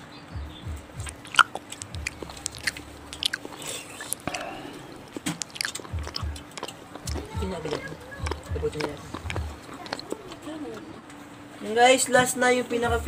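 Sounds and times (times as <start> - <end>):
sharp mouth clicks: 0.7 - 10.4
wet chewing with smacks: 0.7 - 10.9.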